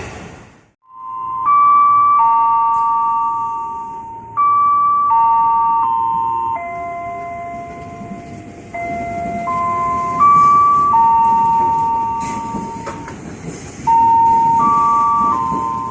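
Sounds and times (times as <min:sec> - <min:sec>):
low rumble of rail noise: 0:00.0 - 0:15.9
electronic bell-like chime melody: 0:00.9 - 0:12.9.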